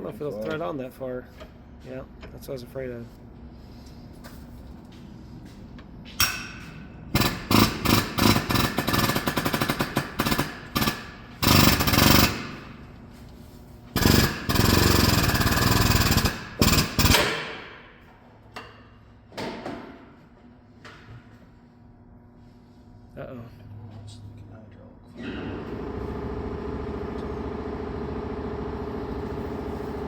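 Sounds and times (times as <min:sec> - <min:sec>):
pneumatic impact wrench hammering: 0:06.2 - 0:12.8, 0:13.9 - 0:17.9.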